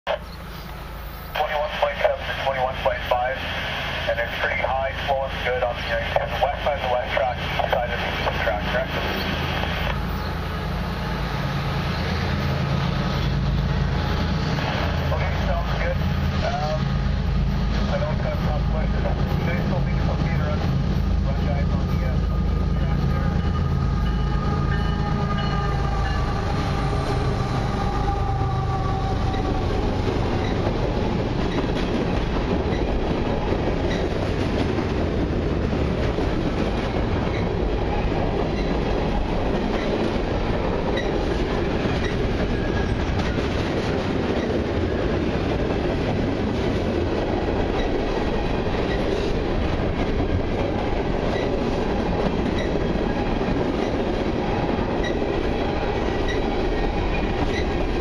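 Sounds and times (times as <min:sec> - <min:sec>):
diesel locomotive engine drone: 0:00.1 - 0:58.0
freight cars rumbling: 0:00.1 - 0:58.0
wheels clacking over rail joints: 0:28.5 - 0:35.3.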